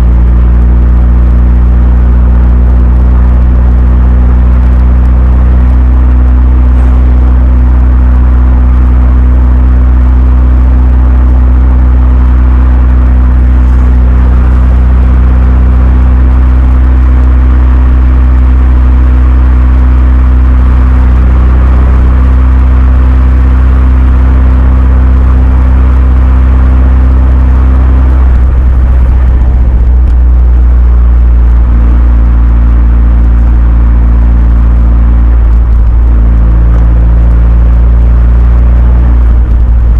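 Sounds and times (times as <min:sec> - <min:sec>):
car engine low drone: 0:00.0 - 0:39.9.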